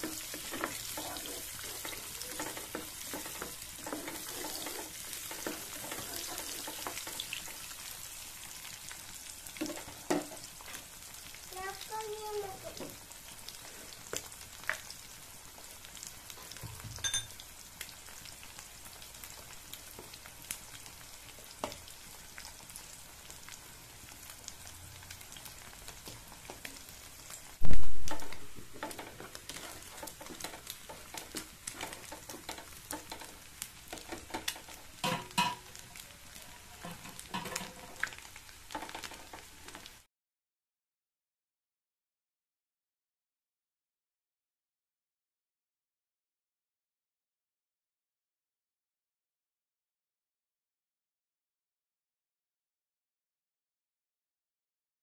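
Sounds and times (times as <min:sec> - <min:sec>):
eggs sizzling in oil: 0:00.0 - 0:40.1.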